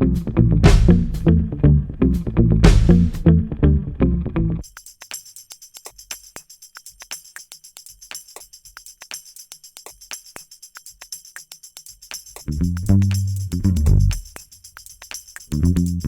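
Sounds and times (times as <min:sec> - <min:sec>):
light percussion ticks: 0:04.6 - 0:16.0
tambourine jingle: 0:04.6 - 0:16.0.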